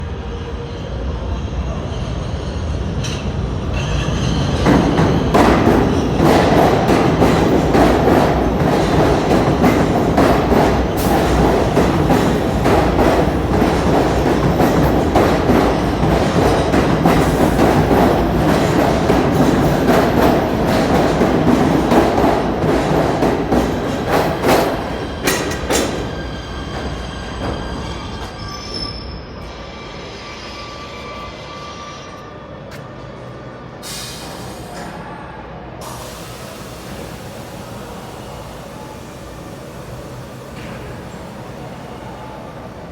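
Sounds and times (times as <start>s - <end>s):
train rumble: 0.0s - 42.9s
wheels clicking over rail joints: 4.7s - 28.3s.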